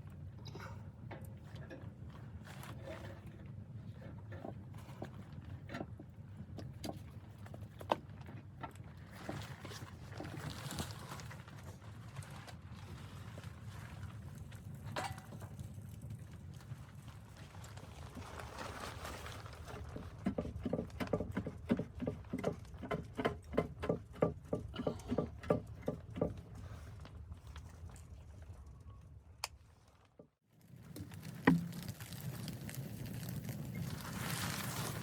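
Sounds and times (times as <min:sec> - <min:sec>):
footsteps crunching in snow: 0:31.1 - 0:35.0.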